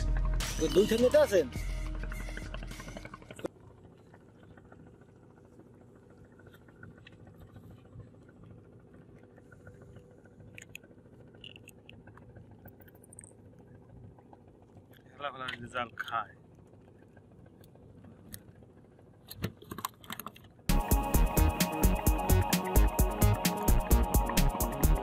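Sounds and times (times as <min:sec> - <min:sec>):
boat engine low hum: 0:00.0 - 0:25.0
small clicks and knocks: 0:10.5 - 0:13.7, 0:19.2 - 0:20.6.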